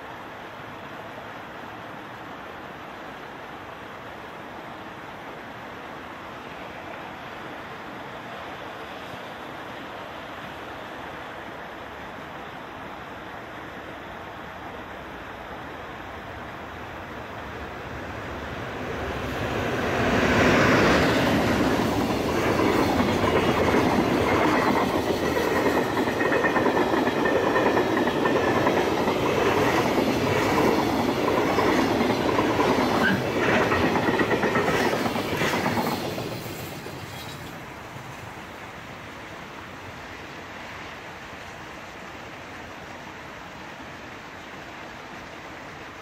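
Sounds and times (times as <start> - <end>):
freight train wheels clattering: 21.1 - 37.6.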